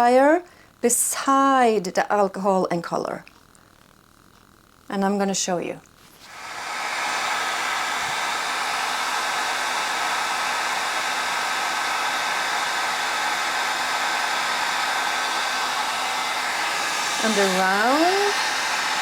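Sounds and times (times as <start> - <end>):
faint steady hum: 0.0 - 6.3
hair dryer blowing air: 6.2 - 19.0.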